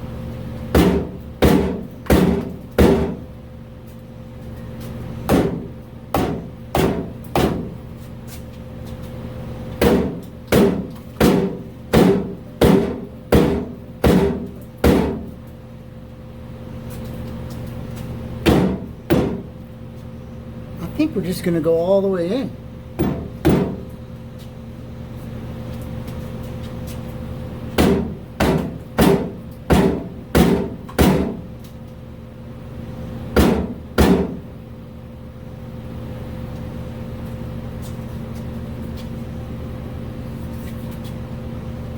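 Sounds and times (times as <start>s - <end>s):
hammer striking car bumper: 0.7s - 3.2s, 5.3s - 7.8s, 9.8s - 15.3s, 18.4s - 19.5s, 23.0s - 23.9s, 27.8s - 31.5s, 33.3s - 34.5s.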